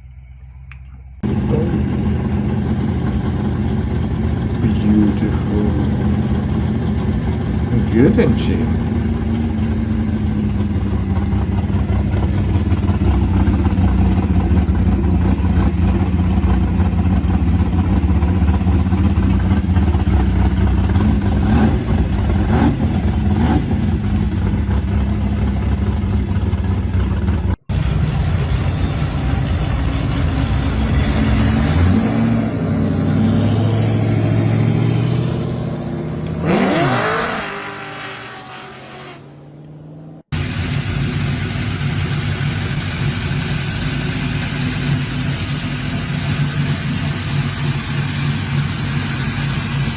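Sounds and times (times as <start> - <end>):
car engine idling: 0.0 - 38.1, 39.2 - 49.9
car engine revving: 1.2 - 49.9.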